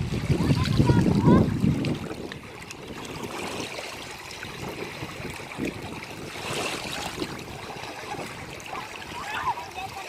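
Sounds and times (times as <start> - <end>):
ocean waves washing on shore: 0.0 - 10.0.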